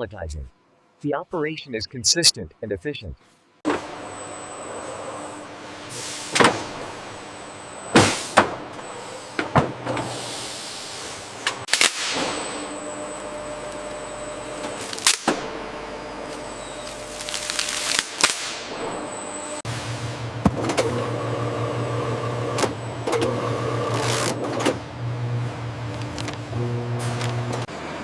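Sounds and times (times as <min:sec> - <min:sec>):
machinery humming: 0:03.7 - 0:28.0
short hiss of air: 0:10.1 - 0:12.2.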